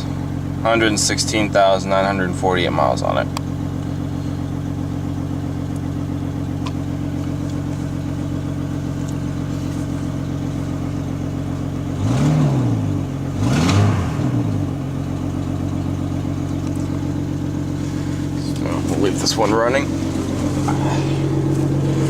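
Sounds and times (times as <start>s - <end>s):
car engine idling: 0.0s - 22.0s
engine revving: 11.8s - 22.0s.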